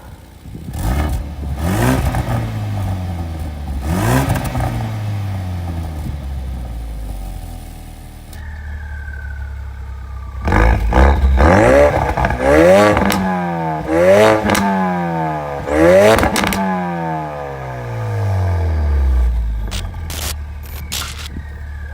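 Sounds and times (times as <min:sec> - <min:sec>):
car engine idling and revving: 0:00.0 - 0:21.9
exhaust pops and cracks: 0:10.4 - 0:13.4, 0:16.1 - 0:16.9, 0:19.6 - 0:21.9.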